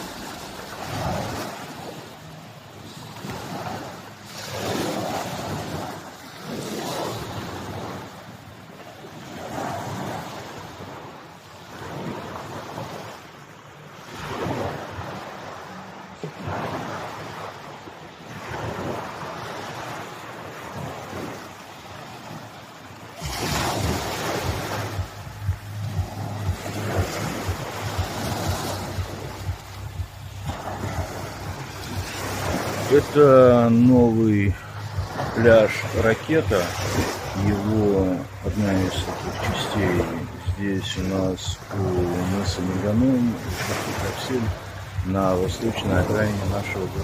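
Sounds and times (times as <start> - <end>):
small waves washing onto shore: 0.0 - 47.0
steady low hum: 23.9 - 42.6.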